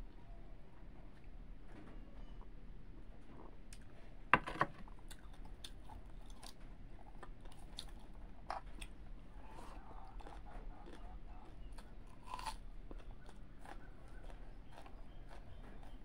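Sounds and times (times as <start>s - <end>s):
person chewing food: 4.8s - 16.0s.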